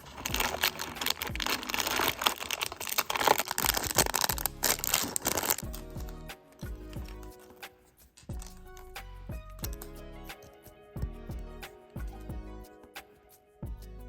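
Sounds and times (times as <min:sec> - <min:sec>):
plastic packaging crinkling: 0:00.0 - 0:06.2
soft background music: 0:00.0 - 0:14.0.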